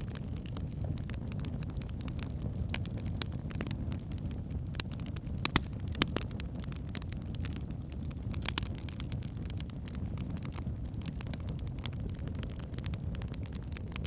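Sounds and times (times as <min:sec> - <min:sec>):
logs crackling and popping: 0:00.0 - 0:14.0
wood fire rumbling: 0:00.0 - 0:14.0.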